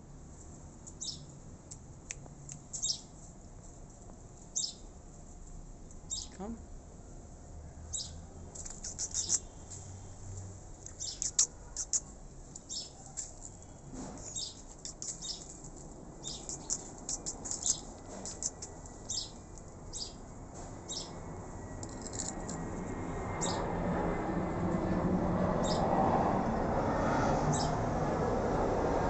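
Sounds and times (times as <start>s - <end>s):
small birds chirping: 0.9s - 1.4s, 2.4s - 3.2s, 4.5s - 4.9s, 6.0s - 6.6s, 7.9s - 10.0s, 10.8s - 21.2s, 23.4s - 23.6s, 27.5s - 27.8s.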